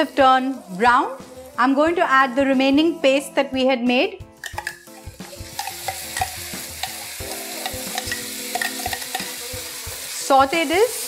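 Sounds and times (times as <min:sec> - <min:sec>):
spice paste sizzling in pan: 0:00.0 - 0:01.8, 0:04.8 - 0:11.0.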